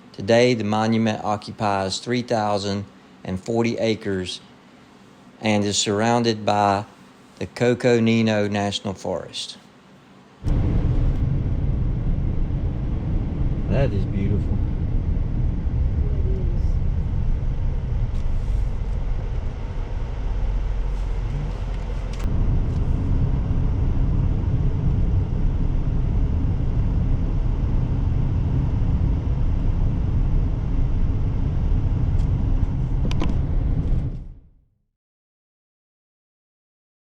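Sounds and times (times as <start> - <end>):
vehicle engine rumble: 10.4 - 34.2.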